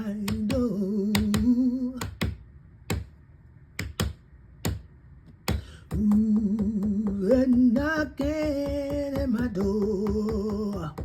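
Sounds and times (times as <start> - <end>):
person singing: 0.0 - 2.2, 5.9 - 11.0
sharp knocks: 3.8 - 11.0.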